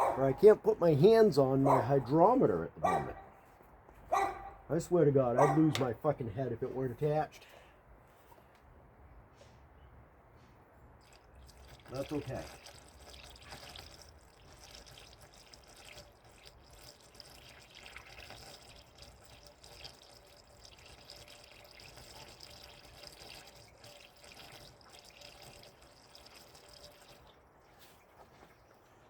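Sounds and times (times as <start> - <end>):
liquid trickling as poured: 11.0 - 29.0.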